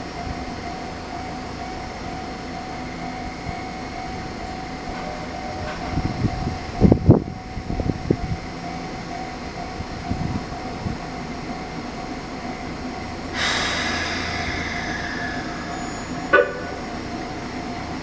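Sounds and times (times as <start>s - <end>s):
electric train humming: 0.0s - 18.0s
hissing rush: 13.3s - 17.0s.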